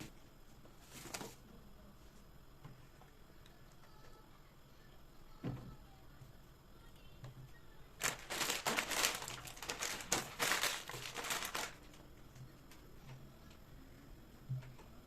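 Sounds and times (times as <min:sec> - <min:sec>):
packaging crinkling and rustling: 0:08.0 - 0:12.0.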